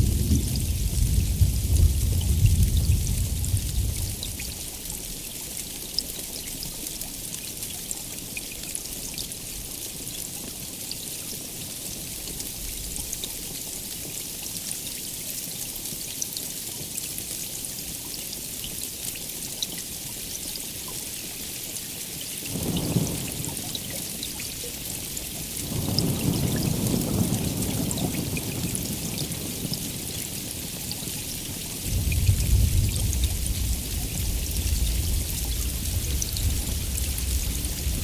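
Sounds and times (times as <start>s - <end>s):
low thunder rumble: 0.0s - 4.6s, 22.5s - 23.9s, 25.4s - 30.8s, 31.8s - 38.0s
heavy rain hissing: 22.5s - 38.0s
raindrops ticking: 22.5s - 38.0s.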